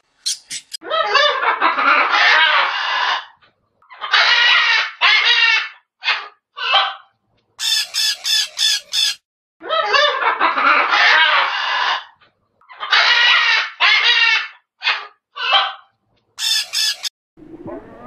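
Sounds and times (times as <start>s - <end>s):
chicken calling: 7.6s - 9.2s, 11.1s - 15.8s, 16.4s - 17.1s.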